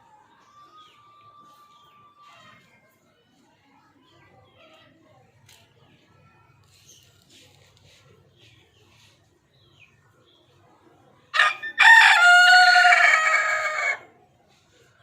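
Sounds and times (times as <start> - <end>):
rooster crowing: 11.4 - 14.1.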